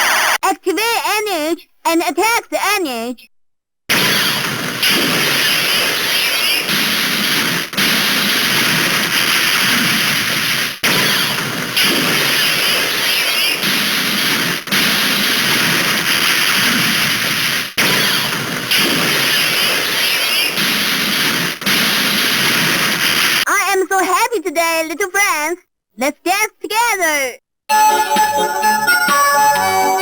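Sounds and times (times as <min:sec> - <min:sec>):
static-like electronic noise: 0:00.0 - 0:00.4, 0:03.9 - 0:23.5.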